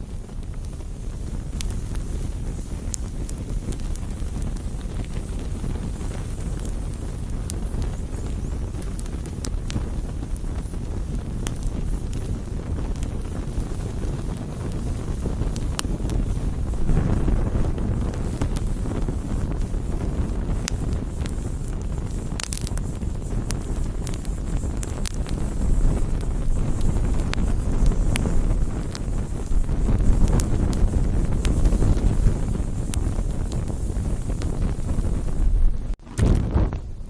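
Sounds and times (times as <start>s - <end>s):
campfire crackling: 0.0s - 37.0s.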